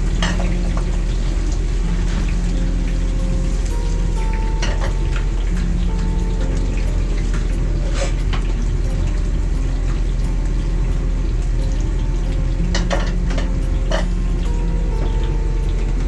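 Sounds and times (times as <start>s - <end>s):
steady rushing noise: 0.0s - 16.0s
utensils and dishes clinking: 0.0s - 16.0s.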